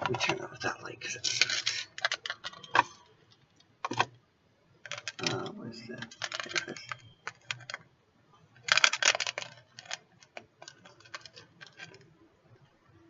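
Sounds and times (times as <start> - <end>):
packaging rustling: 1.3 - 3.0, 4.9 - 7.8, 8.6 - 12.1.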